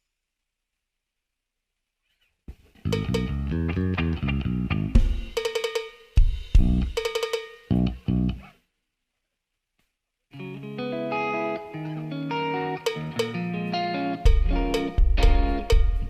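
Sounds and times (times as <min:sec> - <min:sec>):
guitar melody single notes: 0:02.8 - 0:05.4, 0:07.7 - 0:08.5, 0:10.3 - 0:16.0
heavy kick drum: 0:04.8 - 0:05.4, 0:06.2 - 0:07.0, 0:14.3 - 0:16.0
drum kit hits: 0:04.8 - 0:08.0, 0:14.3 - 0:16.0.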